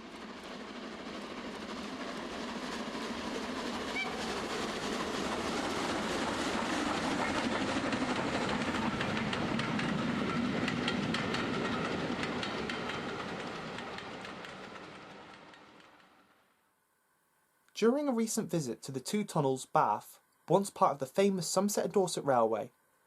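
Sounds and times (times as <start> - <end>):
train running on rails: 0.0 - 16.6.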